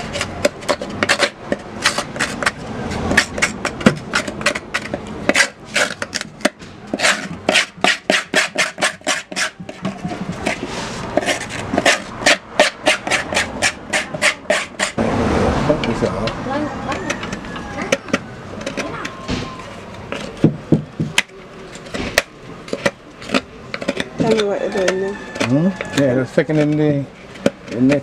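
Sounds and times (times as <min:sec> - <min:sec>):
spoon scraping inside a gourd: 0:00.0 - 0:15.0.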